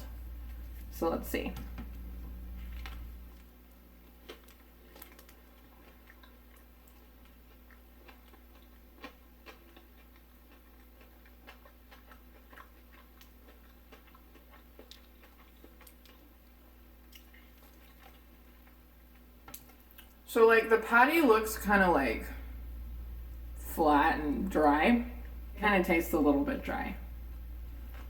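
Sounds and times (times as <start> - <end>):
steady low hum: 0.0 - 28.0
person chewing: 1.9 - 20.2, 27.3 - 28.0.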